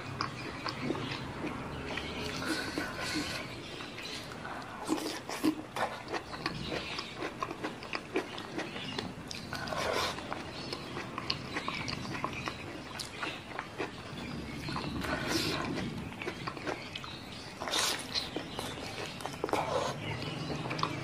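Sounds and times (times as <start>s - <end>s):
close chewing of food: 0.0s - 21.0s.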